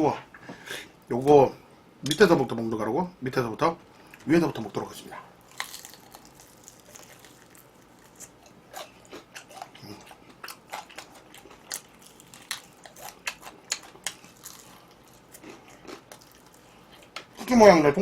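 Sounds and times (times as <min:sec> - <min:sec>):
crunchy chewing of fried chicken: 0:05.1 - 0:17.4.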